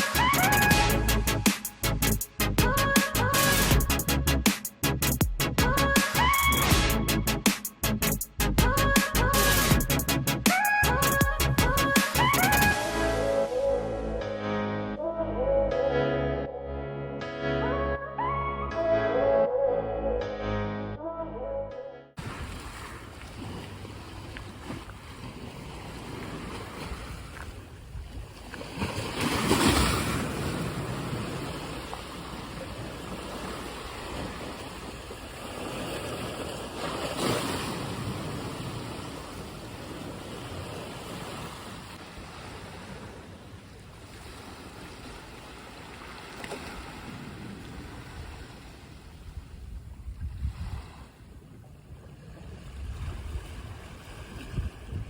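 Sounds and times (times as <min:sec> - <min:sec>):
sea waves washing on shore: 0:22.2 - 0:55.0.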